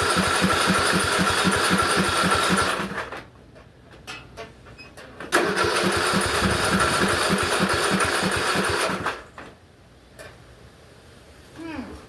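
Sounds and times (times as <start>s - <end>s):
starter motor cranking engine: 0.0s - 3.2s, 5.3s - 9.6s.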